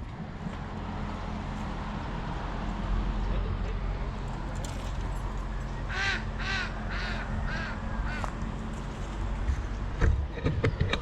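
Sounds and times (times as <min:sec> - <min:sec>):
bird calling: 0:05.6 - 0:08.5.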